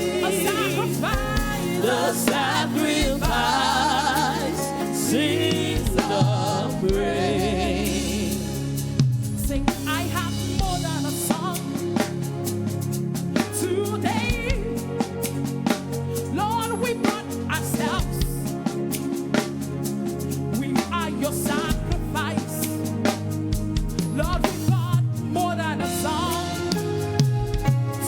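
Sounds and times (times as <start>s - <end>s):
person singing with vibrato: 0.0s - 8.7s, 24.2s - 27.1s
bass notes: 0.0s - 11.2s.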